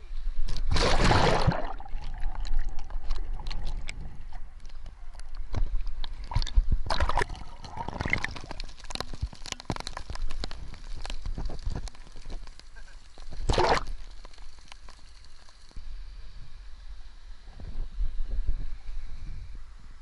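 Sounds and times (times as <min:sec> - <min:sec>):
water splashing and sloshing: 0:00.4 - 0:12.6, 0:13.2 - 0:15.0
small clicks and knocks: 0:08.4 - 0:13.4.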